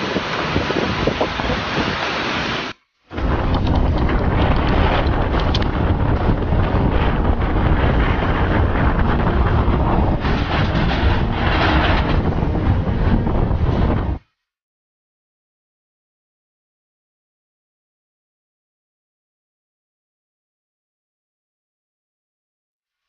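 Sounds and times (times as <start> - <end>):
wind buffeting microphone: 0.0 - 14.2.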